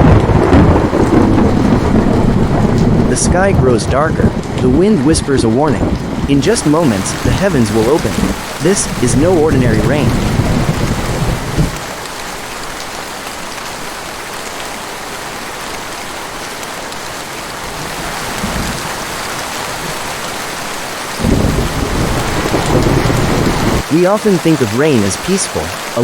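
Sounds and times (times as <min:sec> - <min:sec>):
thunder rumbling: 0:00.0 - 0:12.0, 0:21.2 - 0:23.9
heavy rain hissing: 0:00.0 - 0:26.0.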